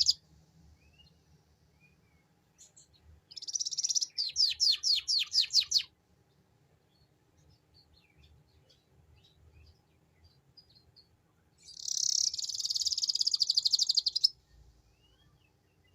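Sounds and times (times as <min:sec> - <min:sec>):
canary chirping and trilling: 0:00.0 - 0:00.2, 0:02.6 - 0:05.9, 0:07.8 - 0:14.4.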